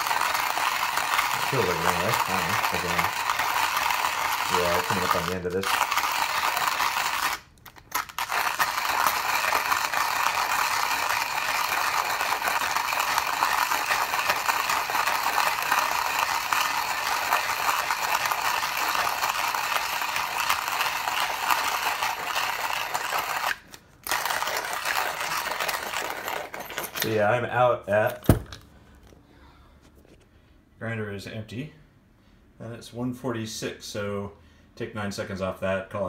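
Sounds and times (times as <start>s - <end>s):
hand coffee grinder crunching beans: 0.0s - 27.2s.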